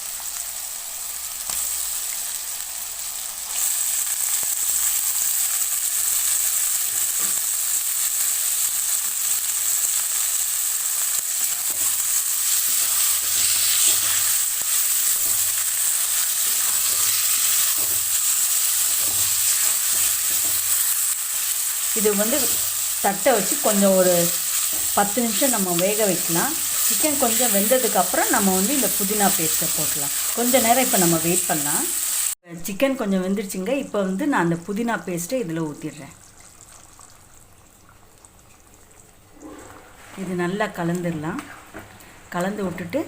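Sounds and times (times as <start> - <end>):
chicken sizzling in oil: 0.0 - 32.4.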